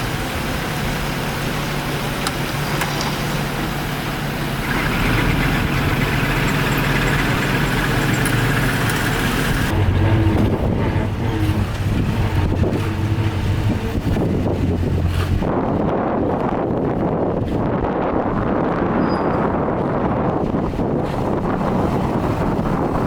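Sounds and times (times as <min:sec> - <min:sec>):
high whine: 0:00.0 - 0:16.0
heavy diesel engine running: 0:00.0 - 0:18.2, 0:19.6 - 0:23.0.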